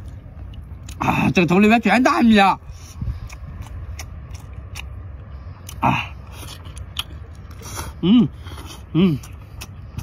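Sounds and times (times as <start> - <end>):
person chewing: 0.0 - 1.2, 2.6 - 10.0
wet mouth clicks: 3.2 - 5.0, 5.6 - 8.0.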